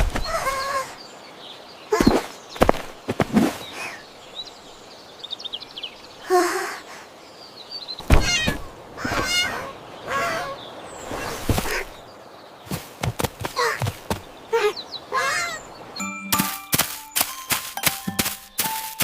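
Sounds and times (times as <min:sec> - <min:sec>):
warbling wavering animal calls: 0:08.2 - 0:12.0
high bird-like chirps: 0:14.7 - 0:19.0.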